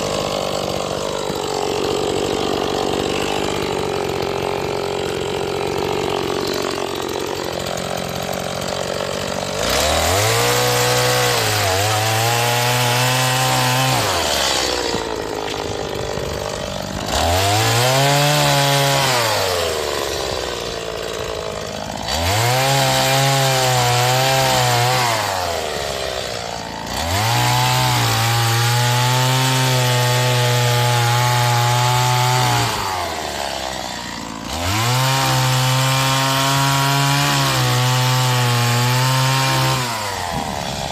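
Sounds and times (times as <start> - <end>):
chainsaw cutting firewood: 0.0 - 40.9.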